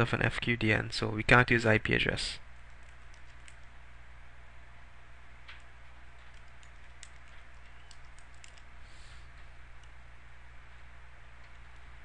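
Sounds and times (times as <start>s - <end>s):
low electrical hum and hiss: 0.0s - 12.0s
computer keyboard keystrokes: 2.7s - 3.7s, 5.5s - 8.7s.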